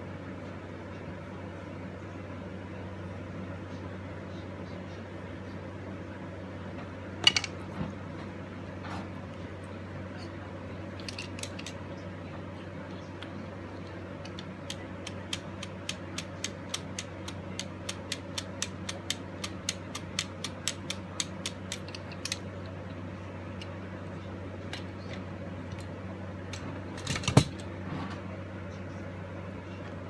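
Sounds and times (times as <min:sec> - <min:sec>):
steady low hum: 0:00.0 - 0:30.0
clockwork mechanism clicking: 0:11.0 - 0:11.8, 0:13.8 - 0:23.0.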